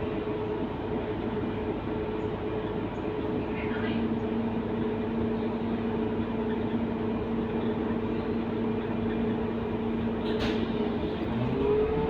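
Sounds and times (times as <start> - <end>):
bus engine hum: 0.0 - 12.0.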